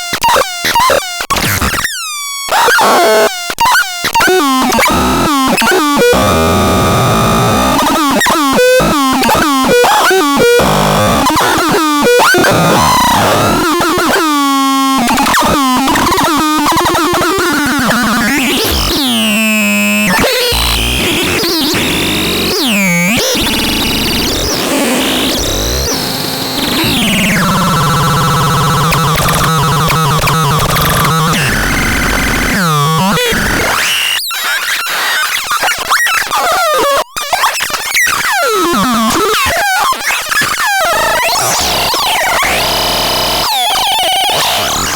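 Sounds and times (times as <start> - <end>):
synthesizer buzzing tone: 4.6 - 24.5, 26.7 - 32.3.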